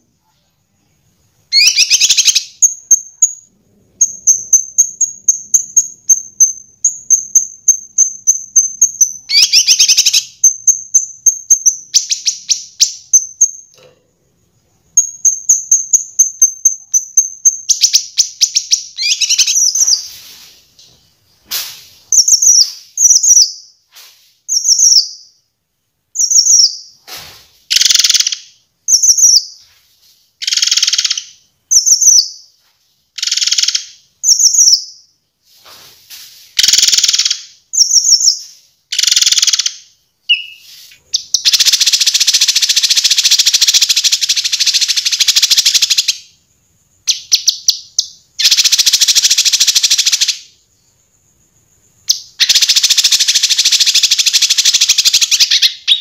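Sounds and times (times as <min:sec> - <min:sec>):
bird trilling: 0:01.5 - 0:03.4, 0:04.0 - 0:13.6, 0:15.0 - 0:20.2, 0:40.3 - 0:46.2
bird whistled notes: 0:01.6 - 0:03.4, 0:40.3 - 0:42.5.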